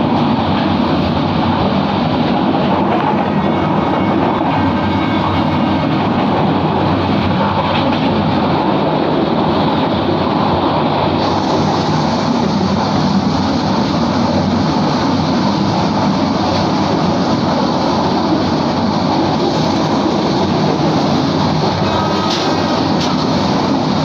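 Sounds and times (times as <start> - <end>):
rushing air: 0.0 - 24.0
train wheels on track: 0.0 - 24.0.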